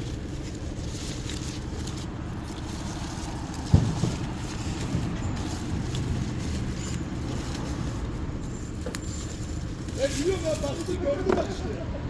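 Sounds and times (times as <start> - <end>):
sharp thump: 3.6 - 5.2.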